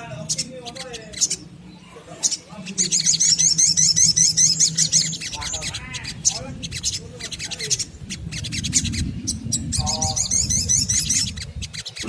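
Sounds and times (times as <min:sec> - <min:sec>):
bird chirping and trilling: 0:00.0 - 0:12.0
steady low rumble: 0:02.8 - 0:12.0.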